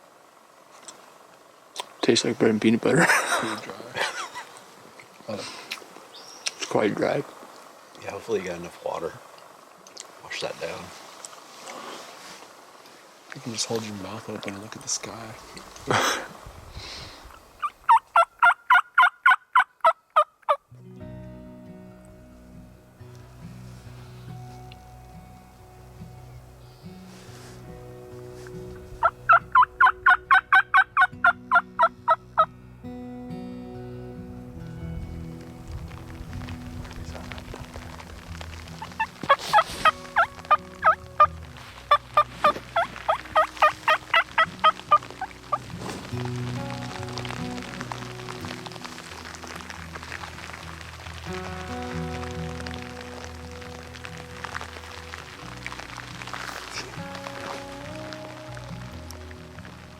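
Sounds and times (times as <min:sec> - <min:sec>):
turkey yelps: 0:17.6 - 0:20.6, 0:29.0 - 0:32.5, 0:38.8 - 0:41.0, 0:41.9 - 0:45.6
music with held tones: 0:20.7 - 0:59.9.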